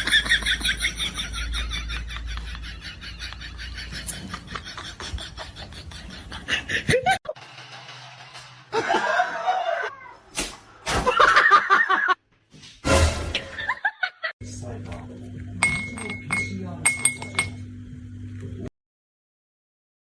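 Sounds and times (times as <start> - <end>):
person laughing: 0.0 - 7.4, 8.7 - 10.0, 11.0 - 12.2, 13.5 - 14.3.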